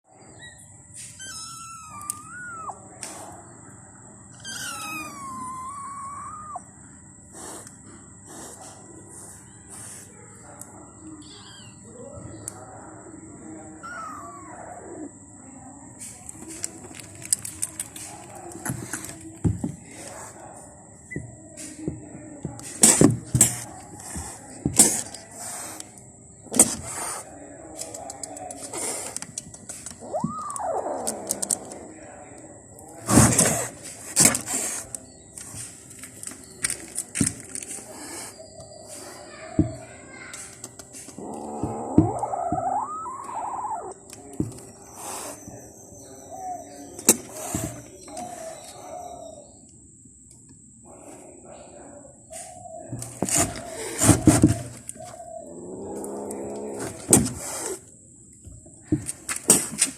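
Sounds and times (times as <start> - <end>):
kitten meowing: 1.2 - 2.8, 4.3 - 6.7, 13.8 - 15.1, 30.0 - 31.8, 41.2 - 44.0
kitten hissing: 4.4 - 6.7, 13.8 - 15.1, 41.2 - 44.0.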